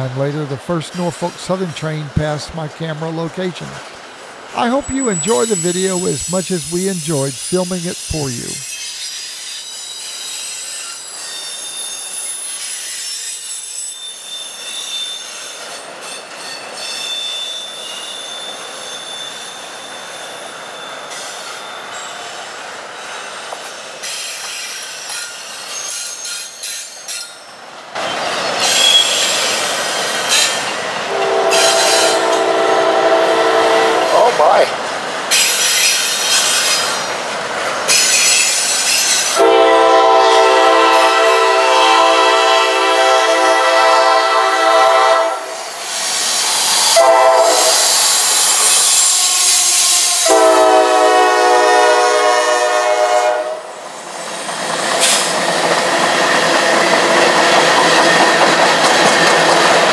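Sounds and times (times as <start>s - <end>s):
wheels squealing on rails: 4.2s - 59.9s
locomotive horn: 31.1s - 34.6s, 39.4s - 45.6s, 46.9s - 47.9s, 50.2s - 53.7s.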